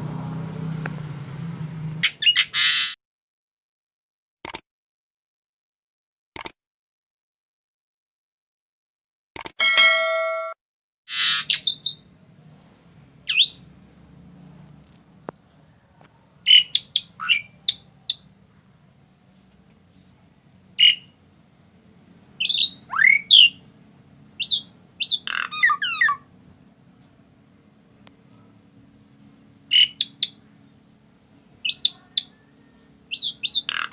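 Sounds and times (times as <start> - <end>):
starling calling: 2.0 - 3.0, 11.1 - 12.1, 13.2 - 13.7, 16.4 - 18.3, 20.8 - 21.2, 22.4 - 26.4, 29.6 - 33.9
ringing tone: 9.6 - 10.6.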